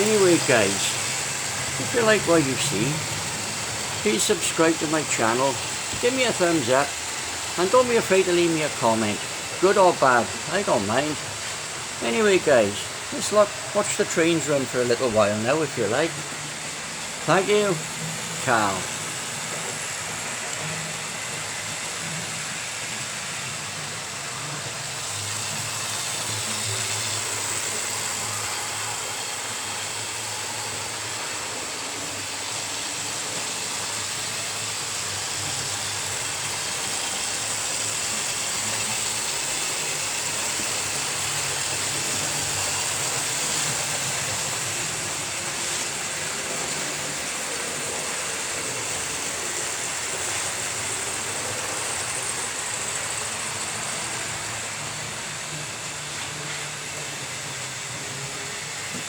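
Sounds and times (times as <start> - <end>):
wheels rattling on track: 0.0 - 59.0
small electric motors whirring: 17.8 - 59.0.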